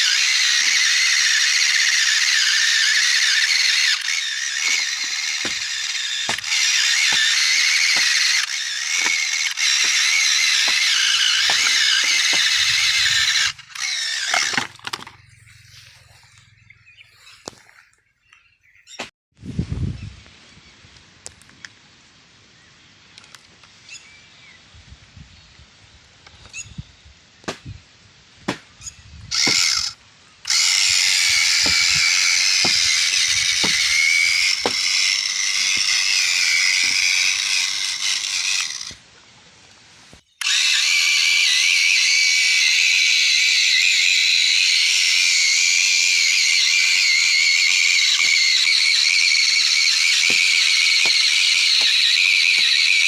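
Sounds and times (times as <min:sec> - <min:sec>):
toy motor whining and grinding: 0:00.0 - 0:16.1, 0:29.3 - 0:39.0, 0:40.1 - 0:53.0.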